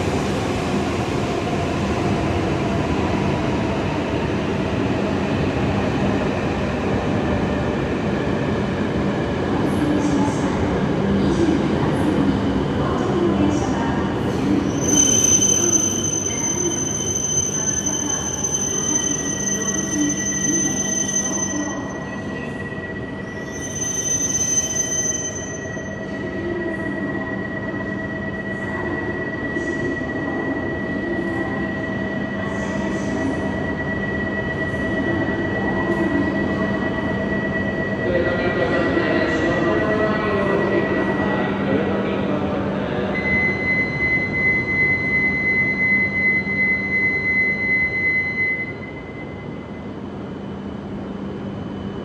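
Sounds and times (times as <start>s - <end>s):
train whine and hum: 0.0s - 52.0s
high-pitched train squeal: 14.3s - 41.5s, 43.2s - 50.0s.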